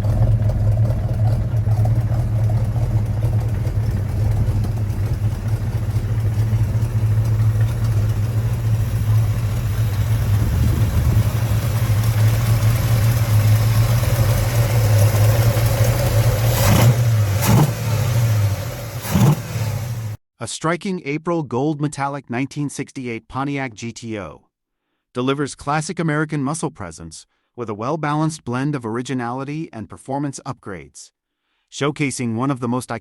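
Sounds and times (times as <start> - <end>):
engine idling with deep note: 0.0 - 20.2
engine revving blips: 0.0 - 20.2.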